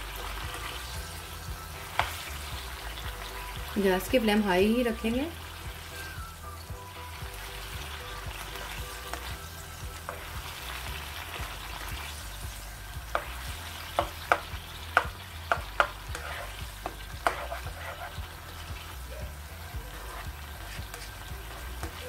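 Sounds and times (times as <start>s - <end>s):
food sizzling in a wok: 0.0s - 22.0s
spatula knocking against pan: 13.1s - 18.0s.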